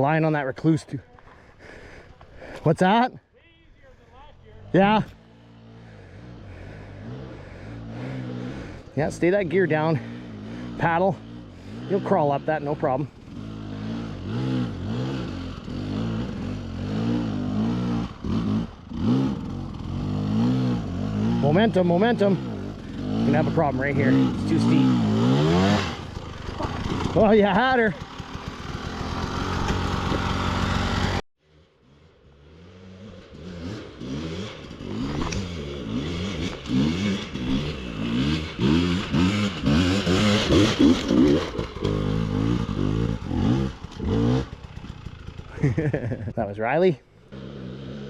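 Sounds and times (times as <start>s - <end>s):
dirt bike engine revving: 4.6s - 31.2s, 31.8s - 48.0s.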